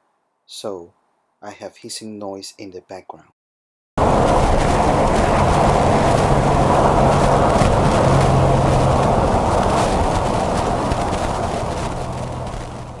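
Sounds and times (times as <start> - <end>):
background hiss: 0.0 - 2.8
car engine running: 4.0 - 13.0
road and wind noise: 4.0 - 13.0.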